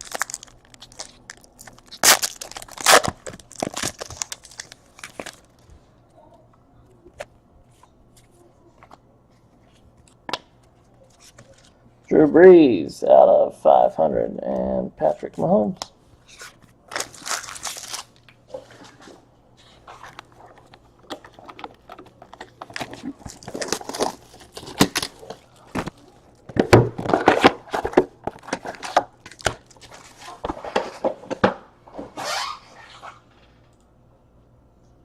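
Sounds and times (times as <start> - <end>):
card wrappers crinkling and tearing: 0.0 - 5.6, 16.3 - 18.9, 19.9 - 26.4, 27.0 - 30.5.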